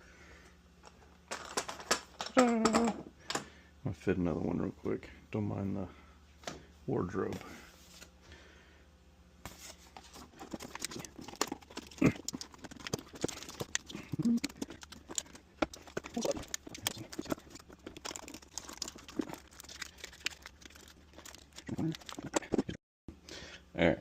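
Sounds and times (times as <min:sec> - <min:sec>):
lining material crinkling and rustling: 0:09.5 - 0:22.8.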